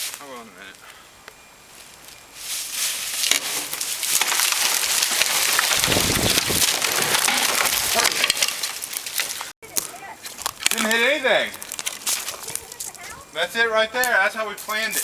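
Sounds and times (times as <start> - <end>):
branches crashing: 1.7 - 13.4
wood cracking and splintering: 3.1 - 13.2
tree trunk thudding on ground: 3.2 - 11.0.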